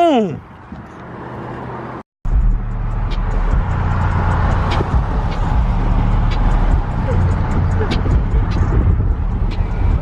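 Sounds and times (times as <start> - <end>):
car engine rumbling: 0.4 - 10.0.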